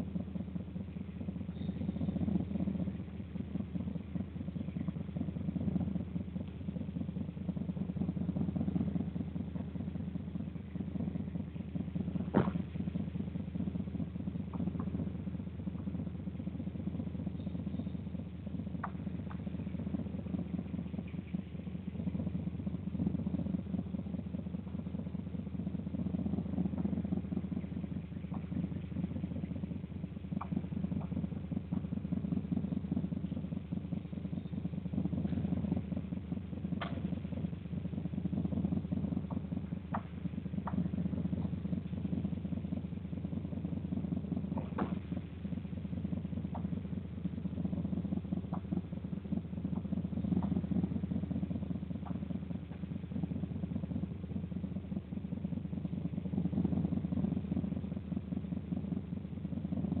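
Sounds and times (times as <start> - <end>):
engine idling: 0.0 - 60.0.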